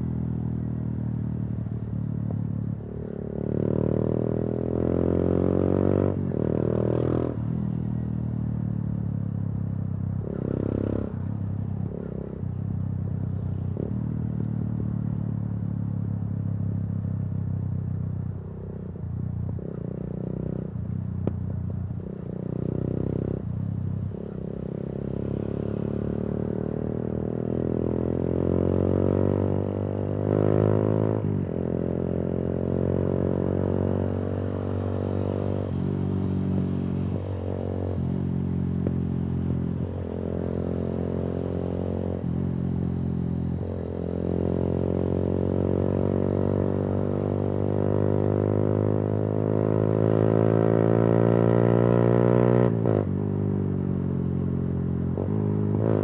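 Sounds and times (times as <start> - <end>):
motorcycle engine revving while riding: 0.0 - 56.0.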